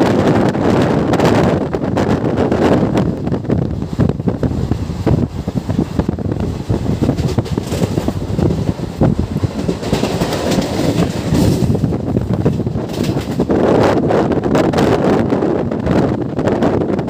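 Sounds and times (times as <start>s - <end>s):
train rumbling: 0.0s - 17.0s
wheels clattering over rail joints: 5.0s - 13.9s.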